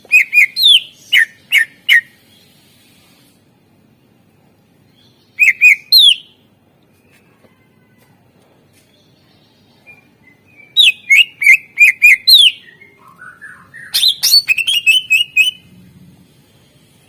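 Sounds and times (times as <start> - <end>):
bird singing: 0.0 - 2.5, 4.8 - 7.2, 9.0 - 15.7.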